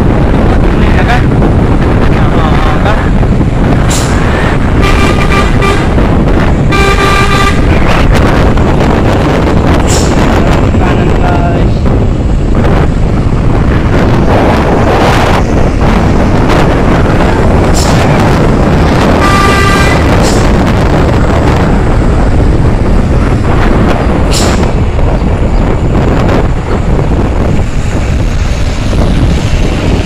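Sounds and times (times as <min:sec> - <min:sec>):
road vehicle noise: 0:00.0 - 0:30.0
wind rush on microphone: 0:00.0 - 0:30.0
vehicle horn toot: 0:04.8 - 0:06.0, 0:06.7 - 0:07.7, 0:19.2 - 0:20.0.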